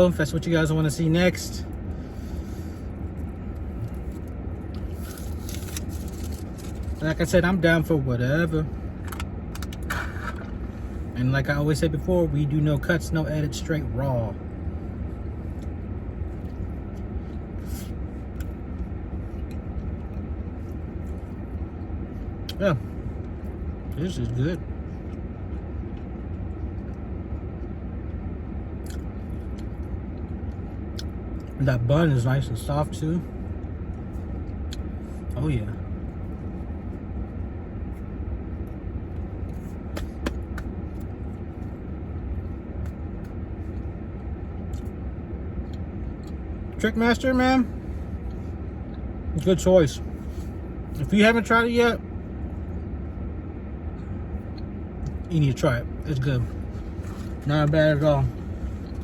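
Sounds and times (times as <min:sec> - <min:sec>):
chewing crispy food: 0:03.0 - 0:07.0.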